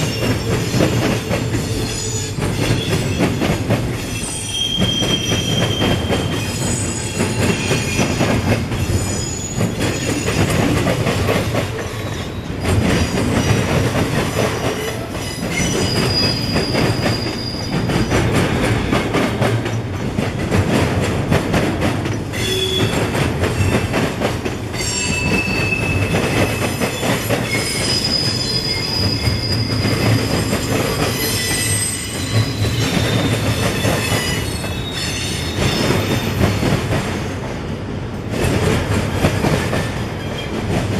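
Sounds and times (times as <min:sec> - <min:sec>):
train wheels rumbling on rails: 0:00.0 - 0:40.9
high wheel squeals: 0:14.7 - 0:17.9, 0:24.8 - 0:36.4.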